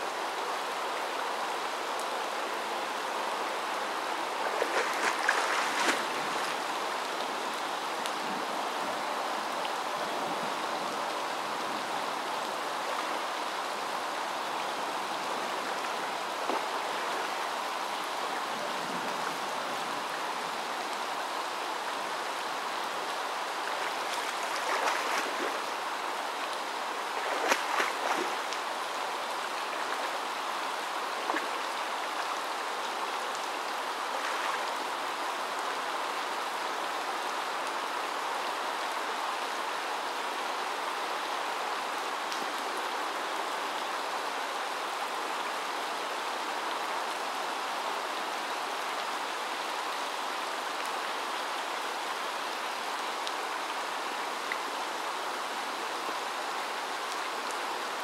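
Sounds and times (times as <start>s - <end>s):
rain: 0.0s - 58.0s
running water: 0.0s - 58.0s
animal splashing through water: 4.3s - 6.8s, 23.7s - 25.7s, 27.1s - 28.6s.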